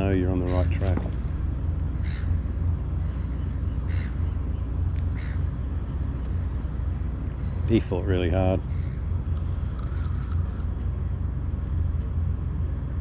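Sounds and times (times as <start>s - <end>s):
bird calling: 0.0s - 5.7s, 8.4s - 10.6s
low rumble: 0.0s - 13.0s.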